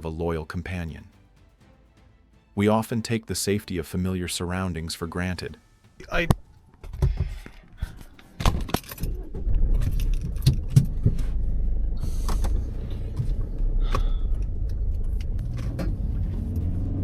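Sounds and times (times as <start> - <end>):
car engine and road rumble: 6.2 - 17.0
knocks and clicks: 6.3 - 16.7.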